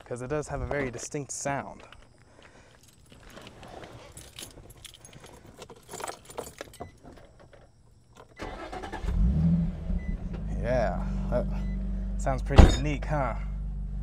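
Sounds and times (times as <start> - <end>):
keys jangling: 2.7 - 8.4
car engine starting and idling: 8.4 - 14.0.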